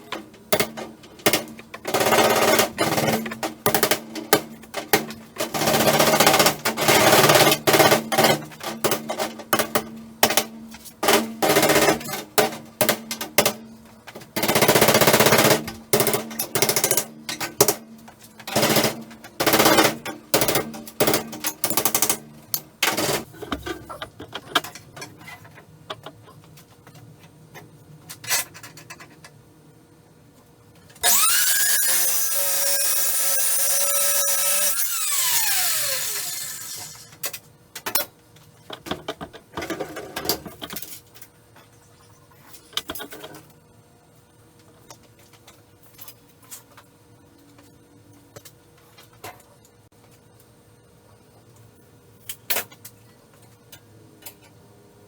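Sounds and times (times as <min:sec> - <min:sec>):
angle grinder whining: 0:31.0 - 0:37.1.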